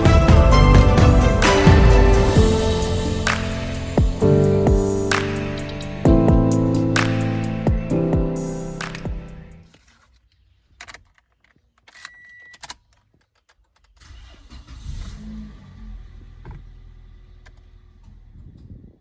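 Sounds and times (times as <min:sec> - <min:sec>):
car engine starting and running: 0:13.8 - 0:18.8.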